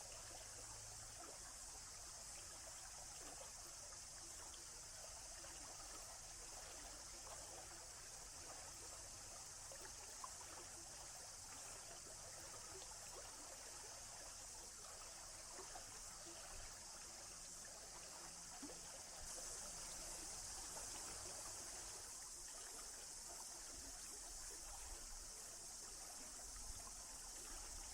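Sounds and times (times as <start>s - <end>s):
small drips and ticks: 0.0s - 27.9s
stream trickling: 0.0s - 27.9s
high hiss: 15.3s - 27.9s.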